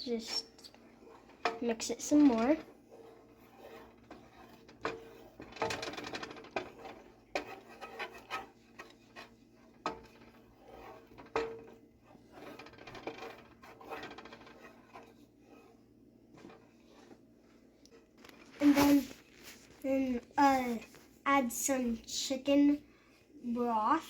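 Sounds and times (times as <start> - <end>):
utensil scraping a pan: 0.0 - 19.8.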